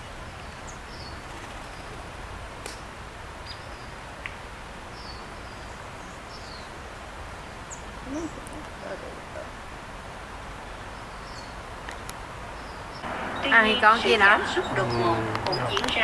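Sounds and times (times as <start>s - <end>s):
outdoor background noise: 0.0s - 16.0s
high bird chirps: 12.6s - 16.0s.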